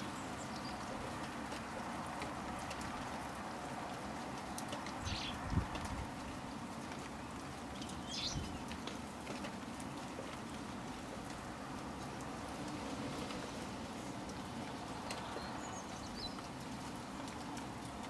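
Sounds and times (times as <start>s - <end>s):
light rain pattering: 0.0s - 18.0s
high bird calls: 5.0s - 5.4s.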